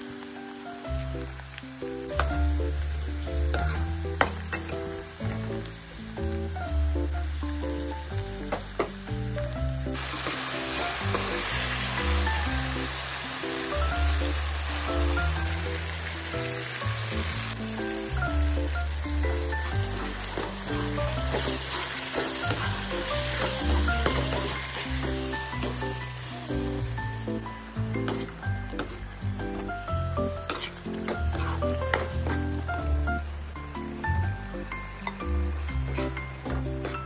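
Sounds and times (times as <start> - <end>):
background music: 0.0 - 37.0
food sizzling in hot oil: 0.0 - 37.0
ladle stirring: 19.3 - 26.2, 30.4 - 32.4.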